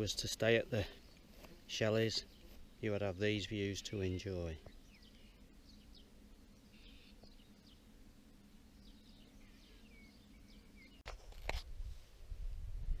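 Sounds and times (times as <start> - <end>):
faint birdsong chirps: 0.0 - 11.1
low wind rumble: 11.6 - 13.0.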